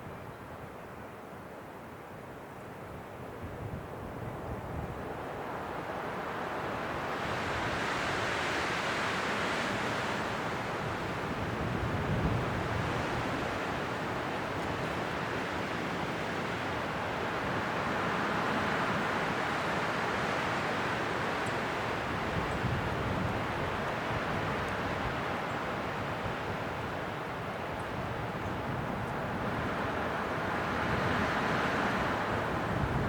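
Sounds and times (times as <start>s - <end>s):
strong wind gusting: 6.9s - 33.0s.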